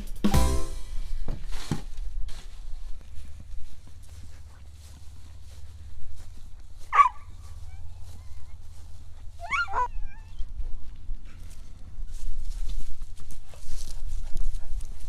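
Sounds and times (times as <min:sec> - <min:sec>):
steady low hum: 0:02.4 - 0:15.0
high animal calls: 0:09.3 - 0:10.6.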